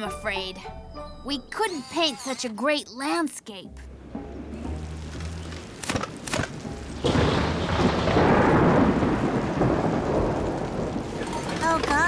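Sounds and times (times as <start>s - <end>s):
rain downpour: 3.9s - 12.0s
thunder rumble: 6.1s - 12.0s
thunder cracks: 7.0s - 12.0s.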